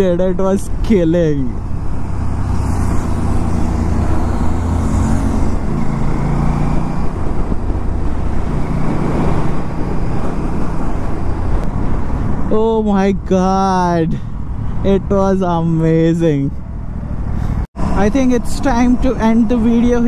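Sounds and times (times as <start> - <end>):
wind rumble on microphone: 1.5 - 13.4.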